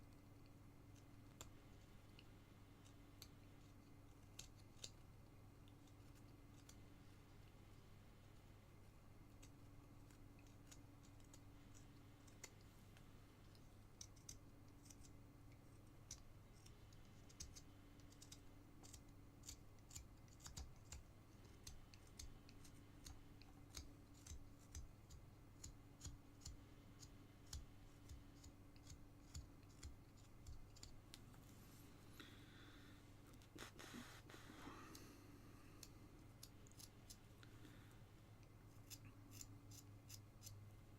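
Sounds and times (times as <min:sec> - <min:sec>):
low electrical hum: 0:00.0 - 0:40.9
knife carving wood: 0:02.8 - 0:06.9, 0:09.1 - 0:12.7, 0:13.5 - 0:31.0, 0:35.7 - 0:37.2, 0:38.6 - 0:40.6.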